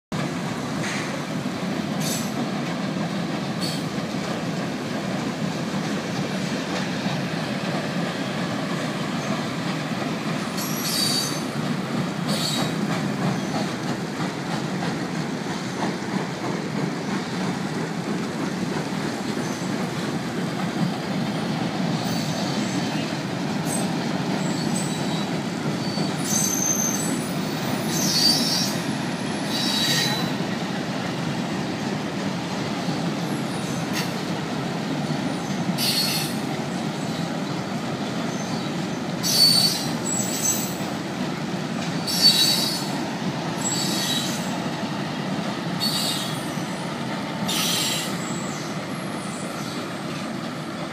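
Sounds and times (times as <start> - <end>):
train wheels rumbling on rails: 0.1 - 50.9
wheels squealing: 10.5 - 11.5, 12.3 - 13.7, 22.0 - 30.4, 35.4 - 36.4, 38.3 - 40.9, 42.0 - 43.0, 43.6 - 44.5, 45.8 - 46.8, 47.4 - 49.8.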